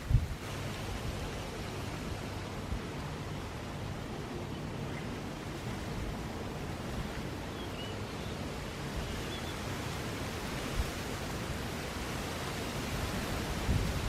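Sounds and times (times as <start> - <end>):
wind buffeting microphone: 0.0 - 3.1, 12.2 - 14.0.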